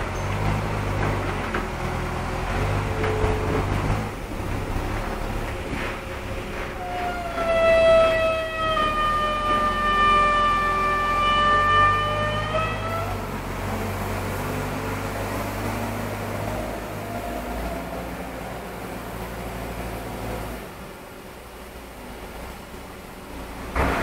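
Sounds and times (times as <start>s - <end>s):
heavy diesel engine running: 0.0s - 24.0s.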